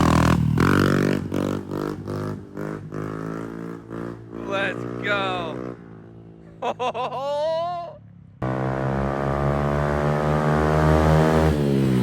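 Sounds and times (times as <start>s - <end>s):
person shouting: 4.4s - 5.6s, 7.2s - 8.0s
pit bike engine accelerating: 8.4s - 12.0s.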